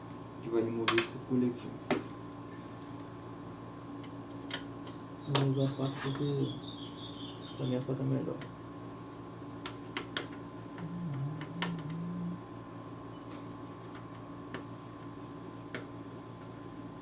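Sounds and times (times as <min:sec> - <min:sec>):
short low hum: 0:10.4 - 0:13.8.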